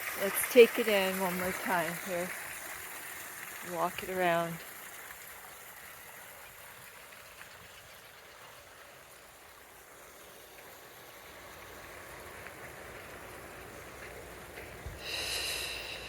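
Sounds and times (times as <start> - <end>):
faint outdoor hiss: 0.0 - 16.0.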